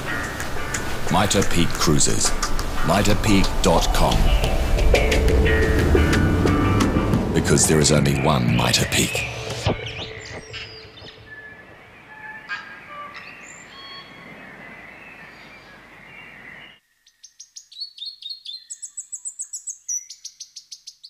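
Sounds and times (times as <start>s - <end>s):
outdoor hiss: 0.0s - 5.6s
birds calling: 0.0s - 21.0s
bird chirps and trills: 8.0s - 21.0s.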